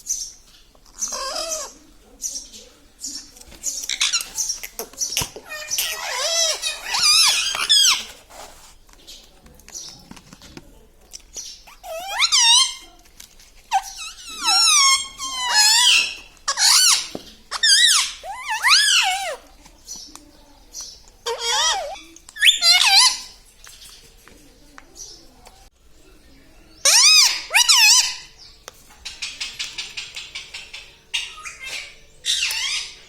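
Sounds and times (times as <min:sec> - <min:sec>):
parrot squeaky calls: 0:01.0 - 0:01.8, 0:03.8 - 0:08.1, 0:11.6 - 0:12.9, 0:13.7 - 0:19.4, 0:21.2 - 0:23.4, 0:26.8 - 0:28.4, 0:29.0 - 0:33.0.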